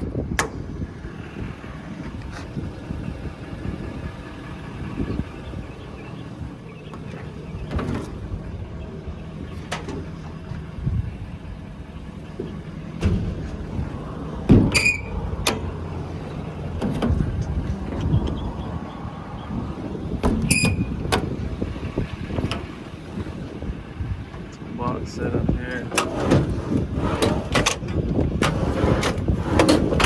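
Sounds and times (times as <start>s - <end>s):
diesel engine idling: 0.0s - 30.0s
metal clanks and knocks: 6.8s - 19.0s, 19.7s - 30.0s.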